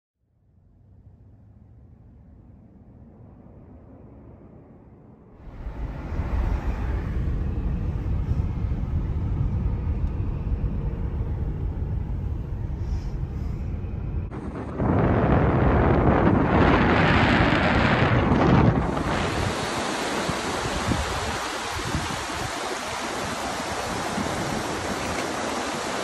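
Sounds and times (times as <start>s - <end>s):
wind buffeting microphone: 14.1s - 26.0s.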